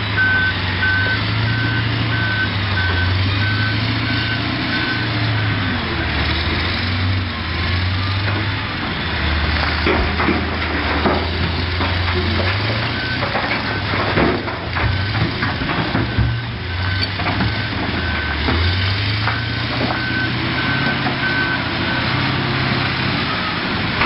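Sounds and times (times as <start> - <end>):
reversing alarm beeping: 0.0 - 8.0, 11.8 - 14.1, 14.8 - 23.6
diesel engine droning: 0.0 - 24.0.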